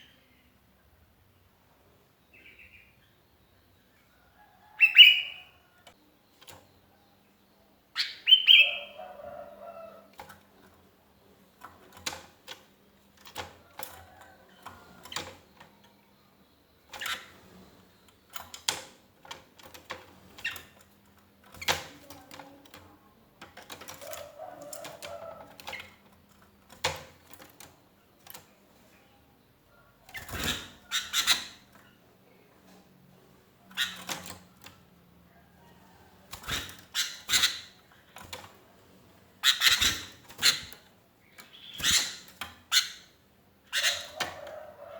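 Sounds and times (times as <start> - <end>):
bird chirping calls: 2.2 - 10.1, 39.4 - 44.9.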